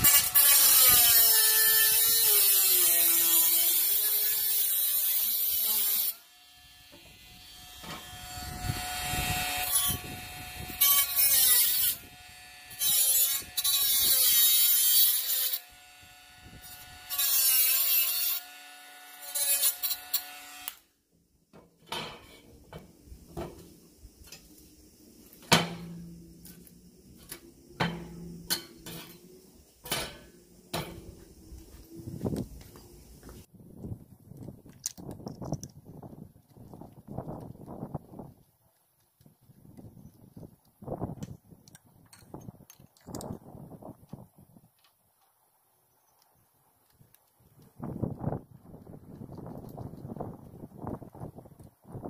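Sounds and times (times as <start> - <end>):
angle grinder whine: 6.3 - 14.4.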